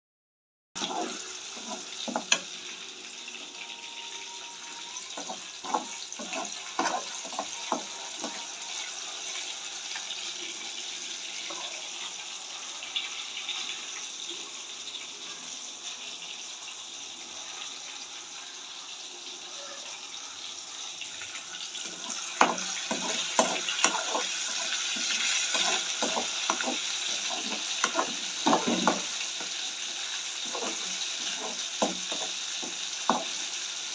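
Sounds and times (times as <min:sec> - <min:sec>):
cooking hiss: 0:00.8 - 0:33.9
utensils knocking and clattering: 0:25.0 - 0:29.5.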